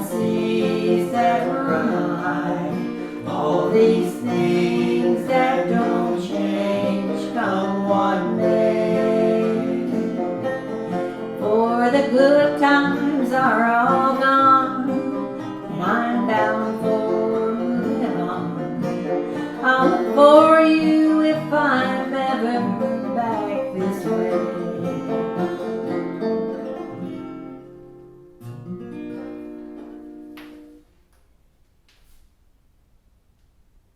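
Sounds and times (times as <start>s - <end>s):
person singing: 0.0s - 25.8s
acoustic guitar strumming: 0.0s - 31.1s.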